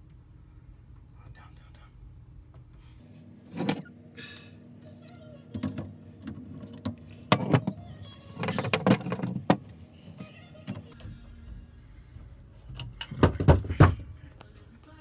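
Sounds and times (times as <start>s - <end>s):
knocks clatters and rattles: 6.5s - 9.8s, 12.7s - 14.2s.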